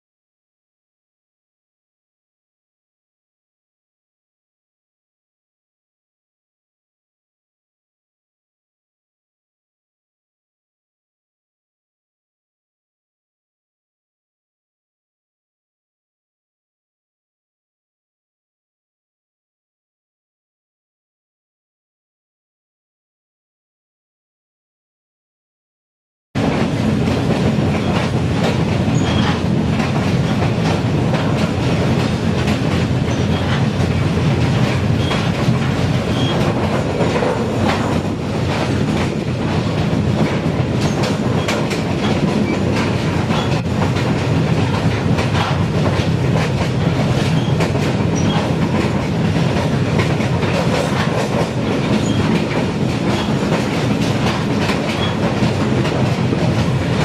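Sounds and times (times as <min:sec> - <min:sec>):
train running noise: 0:26.4 - 0:57.0
wheels clicking over rail joints: 0:26.5 - 0:39.2, 0:39.8 - 0:57.0.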